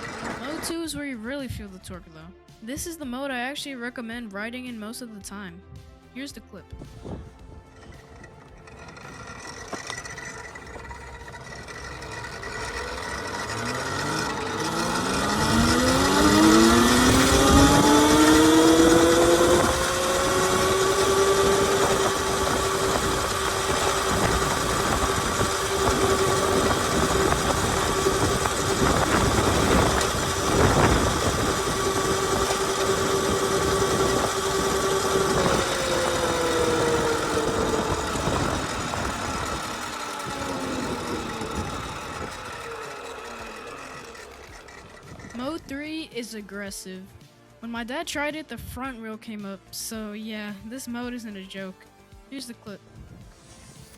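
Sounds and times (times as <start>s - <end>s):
electric motorbike motor whine: 0.0s - 0.8s, 6.9s - 45.8s.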